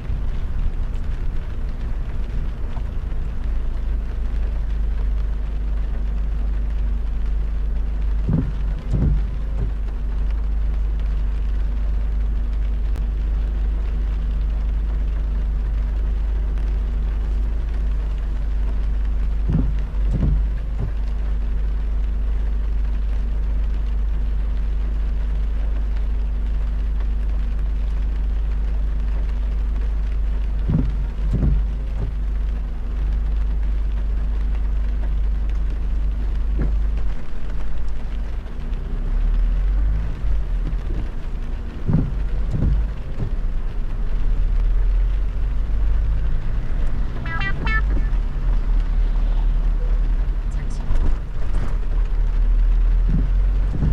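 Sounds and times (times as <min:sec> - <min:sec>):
rain hissing: 0:00.0 - 0:53.9
road rumble and hum: 0:00.0 - 0:53.9
short soft thumps: 0:08.2 - 0:10.0, 0:19.4 - 0:21.1, 0:30.6 - 0:32.2, 0:40.7 - 0:43.7, 0:52.8 - 0:53.9.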